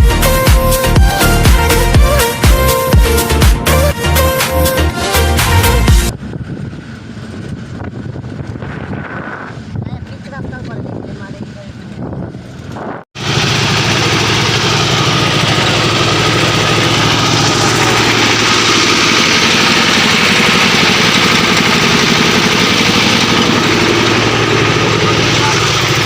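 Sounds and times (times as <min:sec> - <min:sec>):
engine idling loudly: 0:13.2 - 0:26.0.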